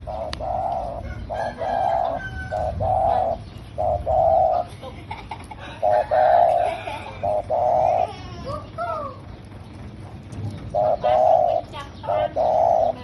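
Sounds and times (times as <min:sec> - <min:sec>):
dove cooing: 0:00.0 - 0:09.3, 0:10.1 - 0:13.0.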